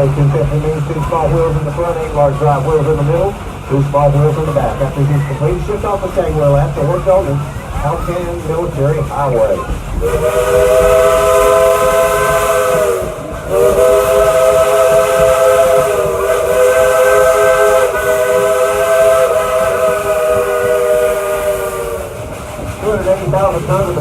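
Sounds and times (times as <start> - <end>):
steam locomotive chime whistle: 10.0 - 22.2.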